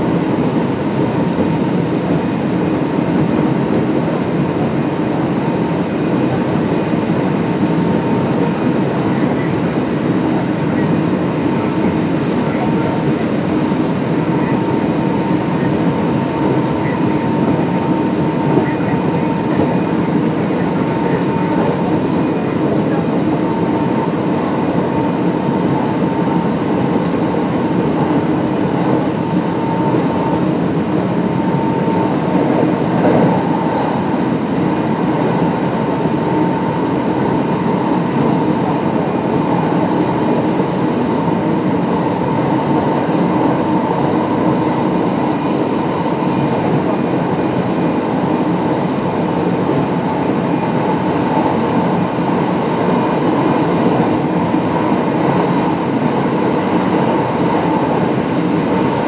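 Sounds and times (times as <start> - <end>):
steady train whine: 0.0 - 59.0
train wheels rumbling on rail: 0.0 - 59.0.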